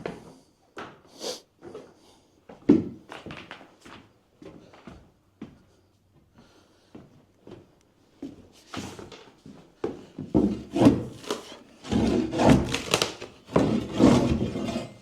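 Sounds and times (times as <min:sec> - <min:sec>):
wooden floorboards cracking and scraping: 0:10.3 - 0:14.9.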